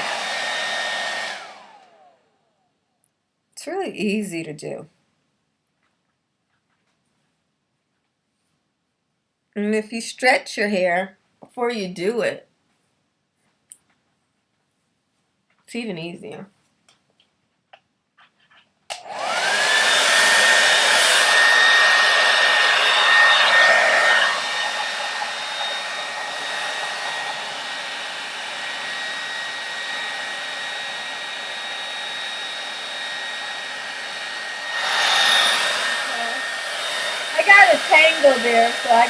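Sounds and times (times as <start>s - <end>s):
rush of blowing air: 0.0s - 1.7s, 19.1s - 39.0s
hair dryer motor whine: 0.0s - 2.5s, 18.9s - 39.0s.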